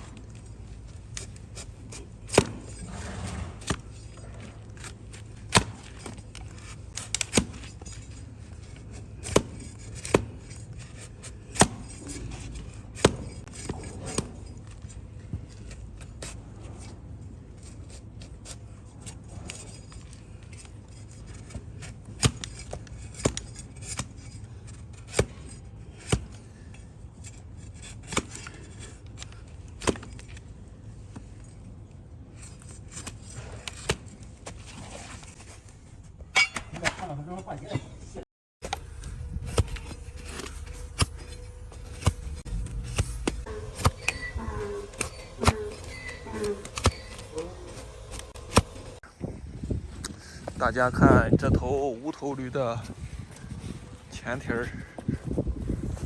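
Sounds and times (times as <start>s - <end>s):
blade cutting hoof: 0.0s - 17.0s, 17.6s - 30.5s, 38.6s - 49.0s.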